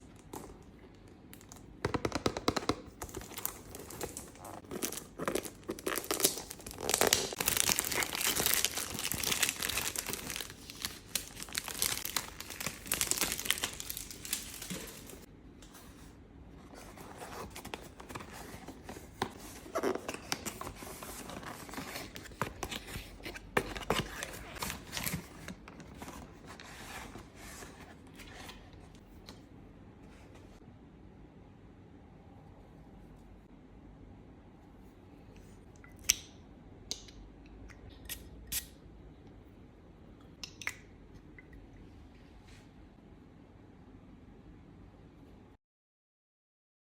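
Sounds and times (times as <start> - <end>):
packaging tearing and crinkling: 3.0 - 15.3.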